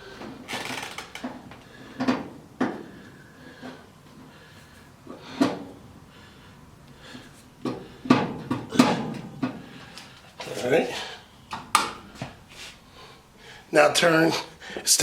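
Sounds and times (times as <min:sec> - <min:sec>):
sheet-metal clunks and knocks: 0:07.6 - 0:09.7.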